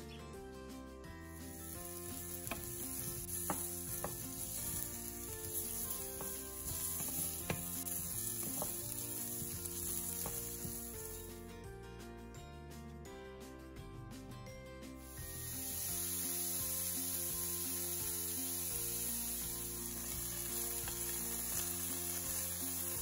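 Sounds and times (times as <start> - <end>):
vegetables sizzling in a skillet: 1.3 - 11.3, 15.0 - 23.0.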